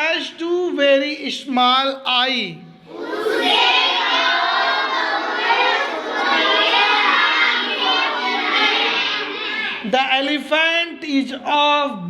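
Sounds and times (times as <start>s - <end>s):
children chanting in chorus: 2.9s - 9.9s.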